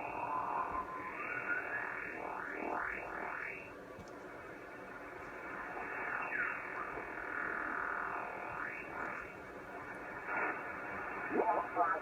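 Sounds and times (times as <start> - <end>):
radio band noise hissing: 0.0 - 12.0
gliding whistling tone: 0.2 - 2.0.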